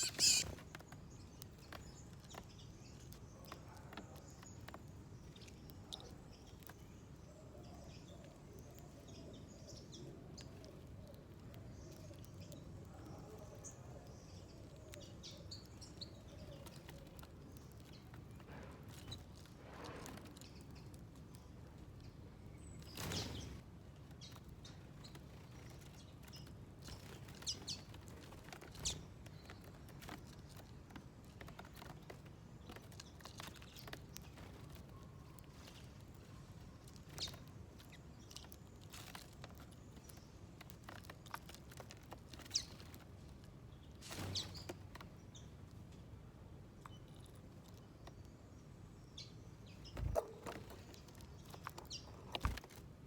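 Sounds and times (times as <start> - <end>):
rustles: 0.0 - 1.0
small birds chirping: 0.0 - 53.0.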